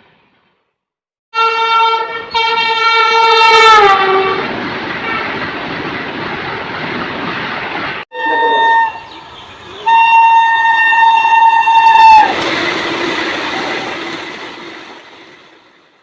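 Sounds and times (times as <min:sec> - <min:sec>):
locomotive horn blasts: 0:01.4 - 0:05.4, 0:08.1 - 0:12.4
passing train rumble: 0:01.4 - 0:16.0.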